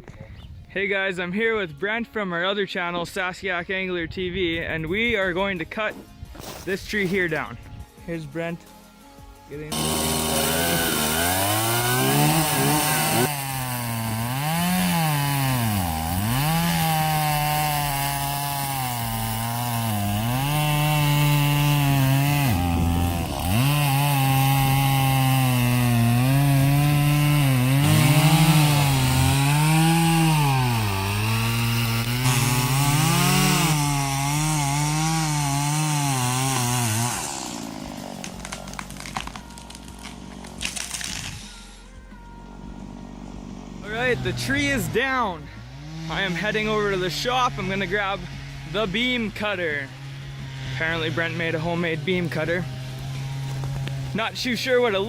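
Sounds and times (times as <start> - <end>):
chainsaw cutting a tree: 9.7 - 41.8, 42.6 - 55.0.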